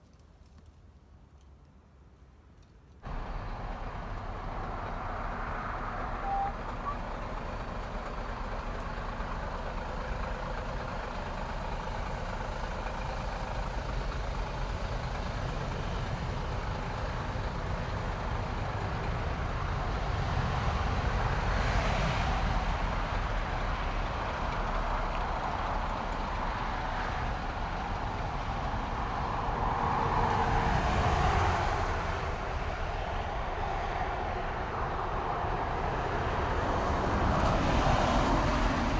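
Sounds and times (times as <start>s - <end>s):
diesel engine drone in car cabin: 3.1s - 21.4s.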